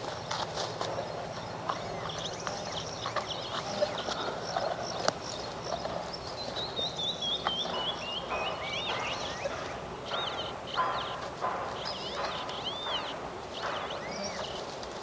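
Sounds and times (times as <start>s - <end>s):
descending whistled bird notes: 6.6s - 14.6s.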